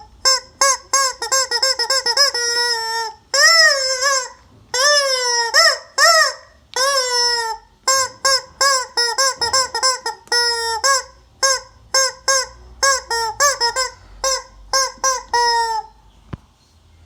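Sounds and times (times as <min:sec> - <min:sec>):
rubber chicken toy squeaking: 0:00.0 - 0:16.0.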